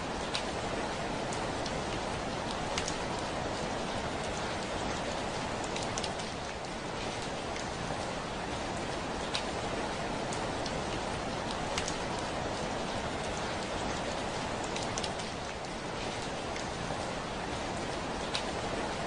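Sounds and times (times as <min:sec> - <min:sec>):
rain on a window: 0:00.0 - 0:19.0
raindrops ticking on glass: 0:11.4 - 0:12.1.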